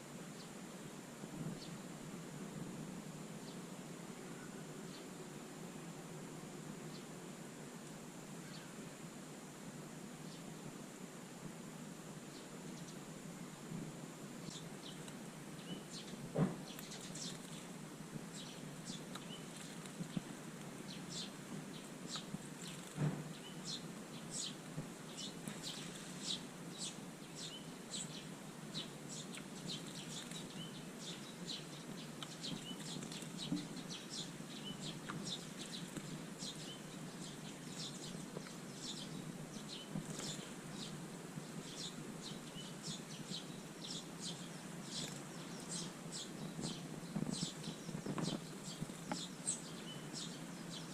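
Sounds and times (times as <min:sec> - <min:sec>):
sparrows chirping: 0:08.4 - 0:08.9, 0:14.4 - 0:50.9.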